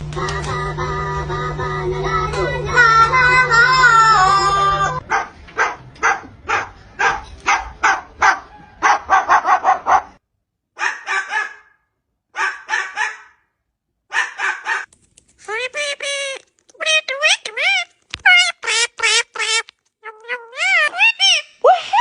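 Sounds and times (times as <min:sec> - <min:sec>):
parrot imitating dog bark: 0:14.1 - 0:21.6.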